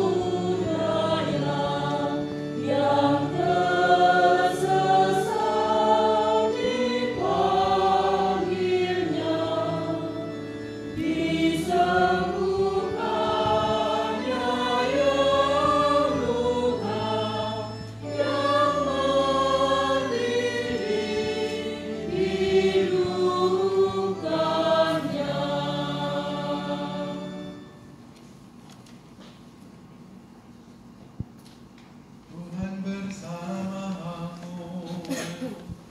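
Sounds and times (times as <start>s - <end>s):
choir singing a hymn: 0.0s - 28.0s
sustained low instrumental notes: 0.0s - 28.1s.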